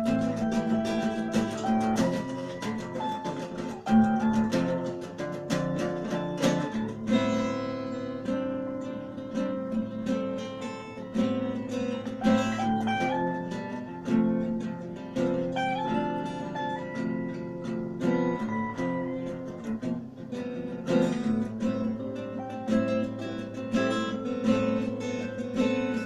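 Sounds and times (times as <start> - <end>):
acoustic guitar music: 0.0 - 26.0.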